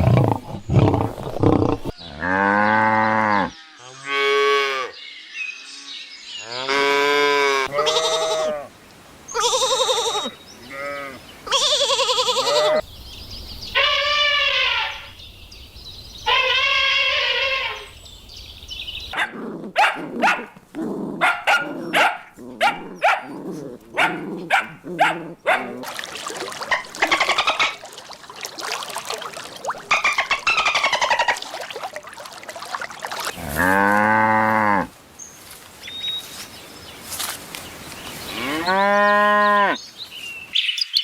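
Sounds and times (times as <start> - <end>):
rough animal calls: 13.7 - 15.2, 16.2 - 18.0, 19.1 - 28.2, 28.8 - 34.9
dog barking: 19.2 - 20.6, 21.2 - 23.4, 24.0 - 25.8
cow mooing: 33.4 - 34.9, 38.3 - 39.8.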